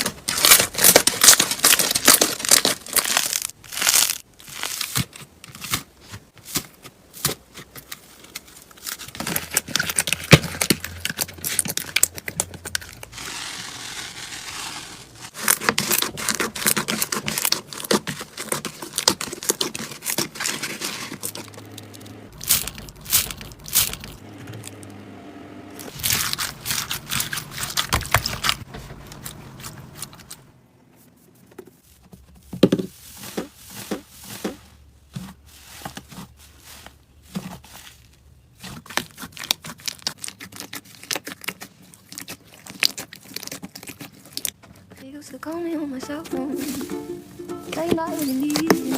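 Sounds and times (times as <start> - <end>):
slime crackling and popping: 0.0 - 5.8, 38.6 - 44.6
sticky scraping and tearing: 0.0 - 24.9, 25.8 - 30.4, 33.0 - 45.0, 47.7 - 48.9.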